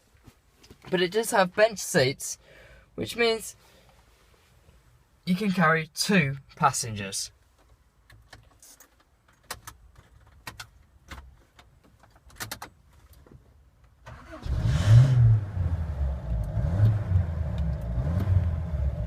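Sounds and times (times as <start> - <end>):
car engine starting and idling: 14.0 - 19.0.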